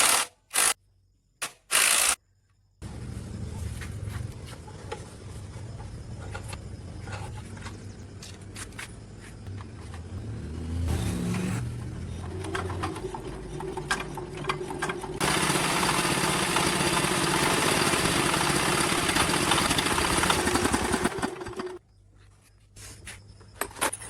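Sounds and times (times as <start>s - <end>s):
machinery hum: 2.5s - 21.8s
dense mechanical noise: 2.8s - 21.8s
machinery clanks and knocks: 10.9s - 15.2s.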